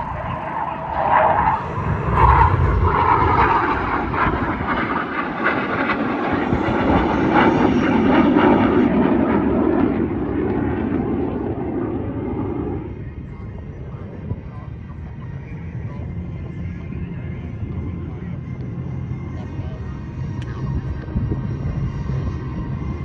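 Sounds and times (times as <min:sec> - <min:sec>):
jets flying past: 0:00.0 - 0:14.4.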